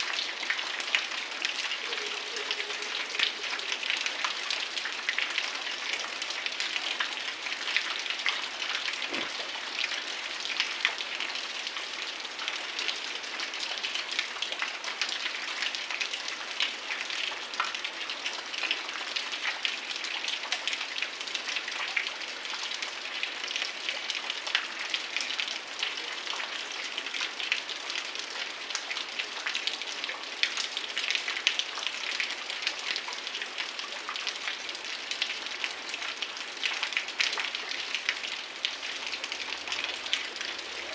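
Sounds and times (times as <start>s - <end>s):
heavy rain falling: 0.0s - 15.4s, 29.4s - 40.9s.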